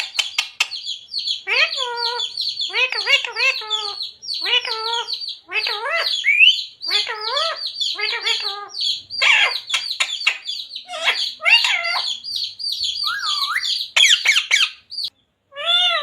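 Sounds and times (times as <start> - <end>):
parrot chirping and squawking: 0.0 - 16.0.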